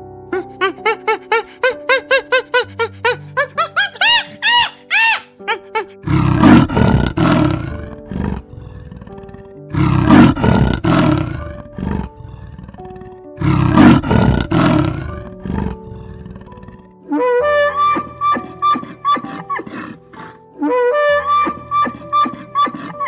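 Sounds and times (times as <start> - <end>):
background music: 0.0 - 23.0
leopard rasping roars: 6.0 - 23.0.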